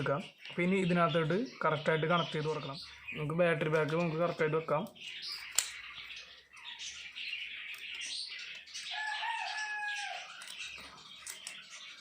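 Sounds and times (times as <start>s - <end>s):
faint birdsong: 0.0s - 12.0s
rooster crowing: 8.9s - 10.4s.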